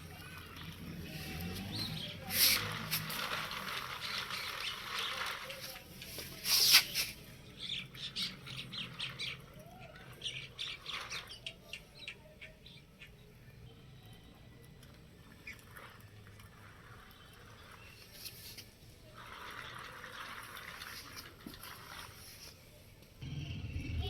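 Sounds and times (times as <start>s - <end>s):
small birds chirping: 0.0s - 19.1s.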